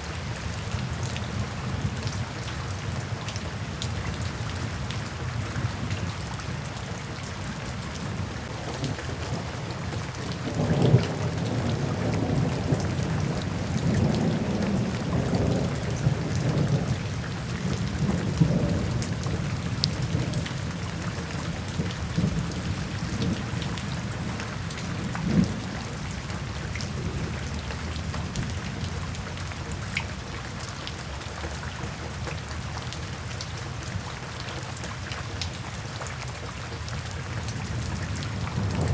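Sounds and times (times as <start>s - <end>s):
steady rain falling: 0.0s - 38.9s
rolling thunder: 37.6s - 38.9s
sharp thunder crack: 38.6s - 38.9s.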